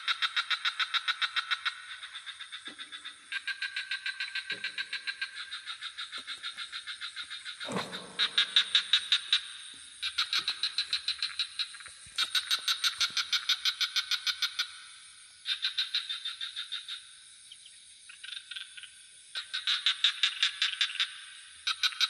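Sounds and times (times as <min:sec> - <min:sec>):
frogs trilling: 0:00.0 - 0:09.4, 0:10.0 - 0:22.0.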